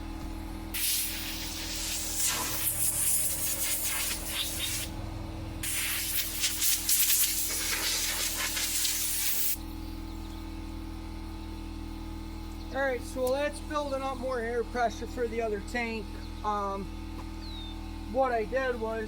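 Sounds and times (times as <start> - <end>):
steady low hum: 0.0 - 19.0
air blow gun hissing: 0.7 - 5.0, 5.6 - 9.6.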